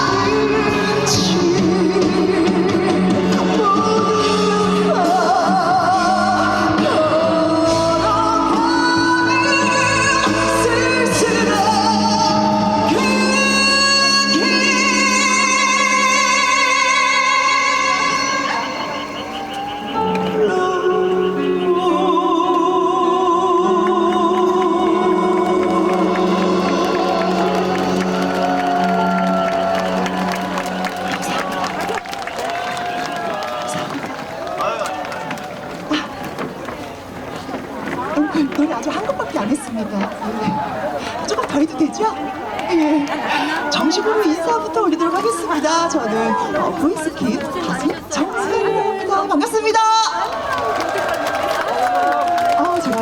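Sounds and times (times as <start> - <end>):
woman singing with vibrato: 0.0 - 31.4
backing music: 0.0 - 34.5.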